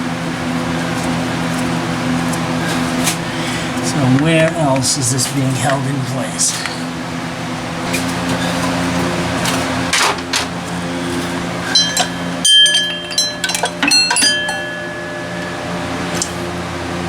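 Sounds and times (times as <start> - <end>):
steady low hum: 0.0 - 17.0
metal tools clinking: 7.9 - 16.4.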